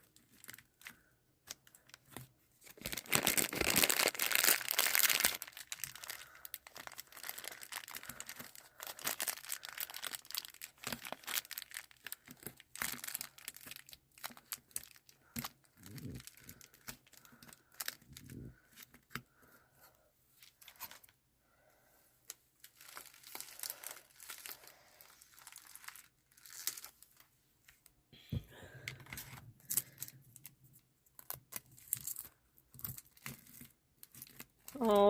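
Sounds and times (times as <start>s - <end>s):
plastic bags crinkling: 0.0s - 19.1s, 22.6s - 27.3s.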